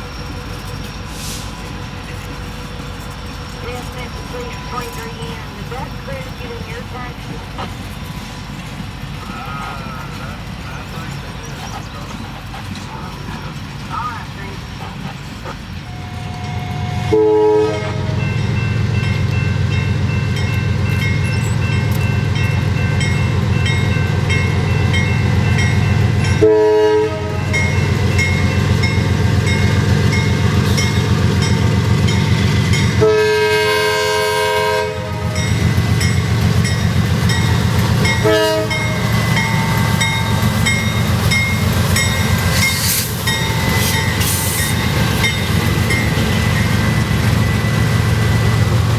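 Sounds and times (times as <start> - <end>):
diesel train engine rumble: 0.0 - 48.9
train horn blasts: 15.9 - 19.2, 26.3 - 28.7, 32.4 - 36.1, 37.4 - 46.8.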